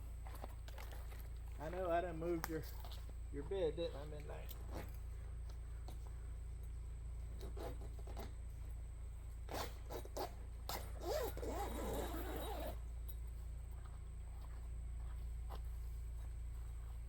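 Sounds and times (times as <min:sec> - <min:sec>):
zipper being pulled: 0:07.4 - 0:08.3, 0:09.5 - 0:12.8.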